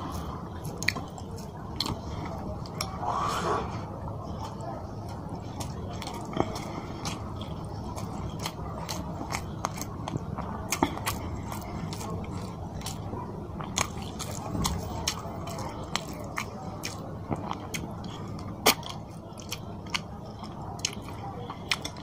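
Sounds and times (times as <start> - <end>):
close chewing with mouth smacks: 0.0 - 3.0, 4.3 - 22.0.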